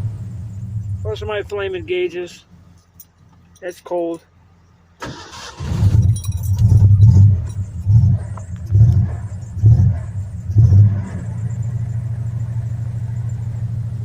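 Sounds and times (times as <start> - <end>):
engine surging on cold start: 5.0 - 11.4.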